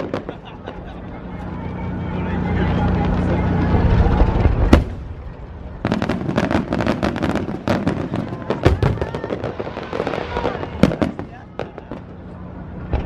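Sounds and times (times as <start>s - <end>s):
rapid crackling firework pops: 0.0s - 1.0s, 2.8s - 13.0s
deep firework boom: 2.8s - 12.2s
firework bang: 2.9s - 12.2s.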